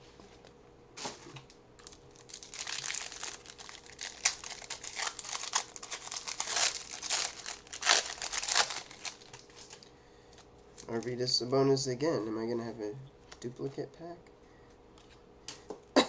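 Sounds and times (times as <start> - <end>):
wrapper crinkling and tearing: 1.8 - 9.8.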